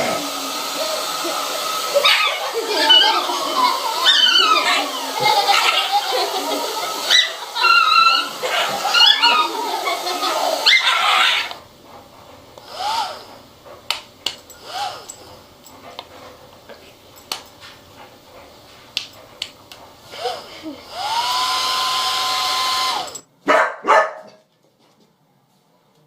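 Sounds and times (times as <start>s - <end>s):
hair dryer motor whine: 0.0s - 11.8s, 12.5s - 23.2s
dog whining: 2.0s - 11.7s.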